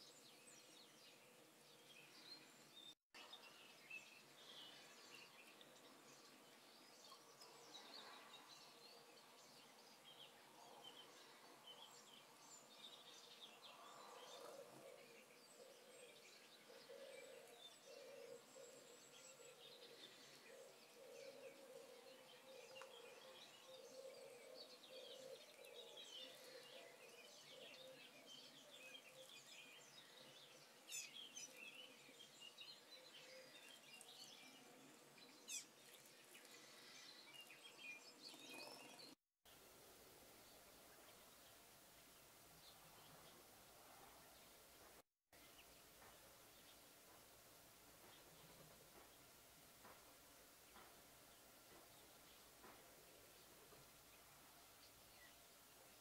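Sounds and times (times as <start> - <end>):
small birds chirping: 0.0 - 39.8
quiet hiss: 0.0 - 56.0.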